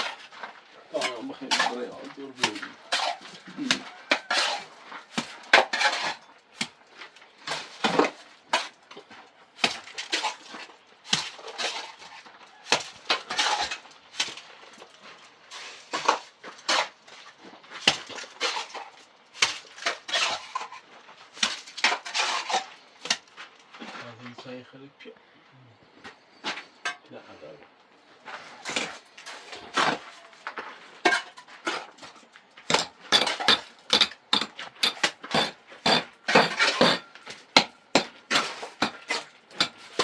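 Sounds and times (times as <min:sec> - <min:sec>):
metal tool scraping stone: 0:01.0 - 0:06.3, 0:13.1 - 0:13.9, 0:19.8 - 0:20.8, 0:21.8 - 0:23.2, 0:32.7 - 0:40.0.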